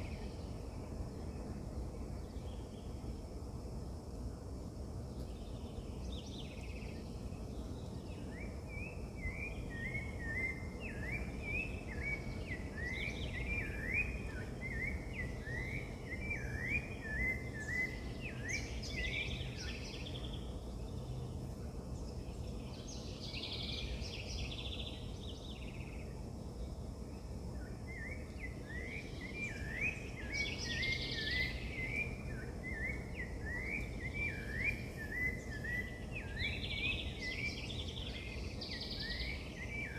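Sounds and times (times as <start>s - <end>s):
bird chirping: 5.2s - 39.9s.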